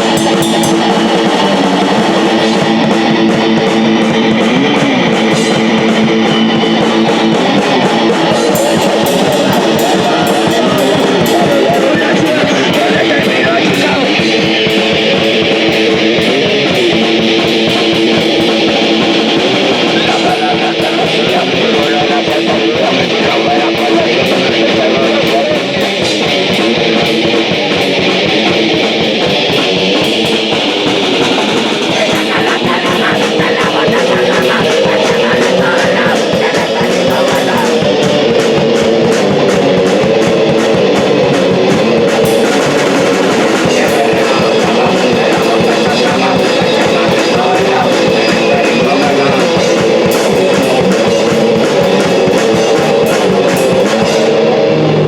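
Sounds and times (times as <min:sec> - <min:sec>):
punk rock music: 0:00.0 - 0:55.0.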